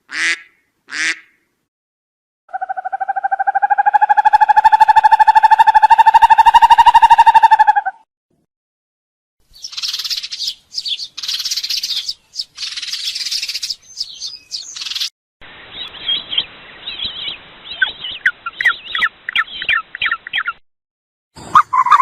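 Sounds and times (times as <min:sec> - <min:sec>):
birds chirping and twittering: 0:09.4 - 0:20.6, 0:21.4 - 0:22.0.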